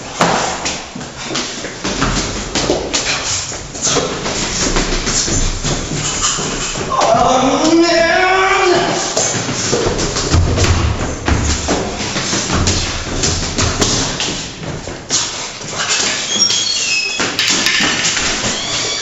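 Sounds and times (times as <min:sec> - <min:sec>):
thumps and knocks: 0:08.8 - 0:15.2.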